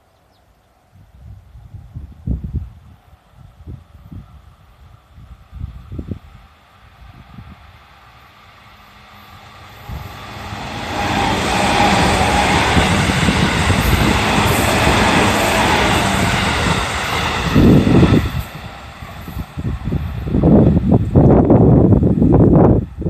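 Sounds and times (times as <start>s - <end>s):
train running past: 4.2s - 23.0s
loud low buffeting: 7.4s - 22.7s.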